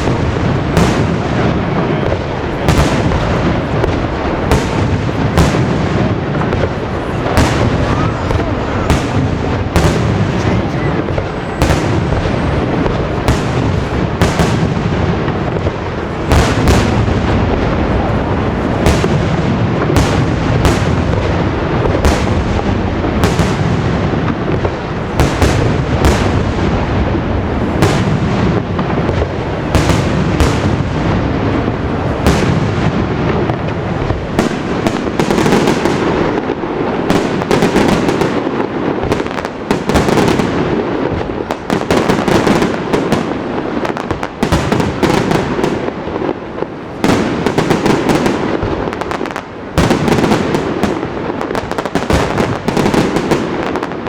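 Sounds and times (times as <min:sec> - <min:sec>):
crackling firework reports: 0:00.0 - 0:54.0
sharp firework bangs: 0:00.0 - 0:54.0.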